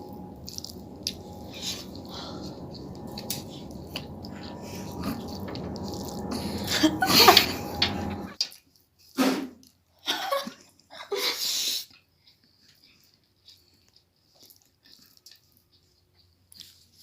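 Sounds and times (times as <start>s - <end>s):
background hum: 0.0s - 8.4s.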